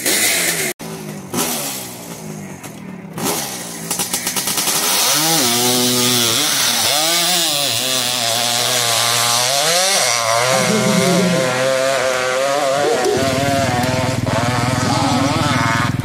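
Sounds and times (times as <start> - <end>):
motorcycle engine revving hard: 0.0 - 16.0
low pulsing engine note: 10.2 - 16.0.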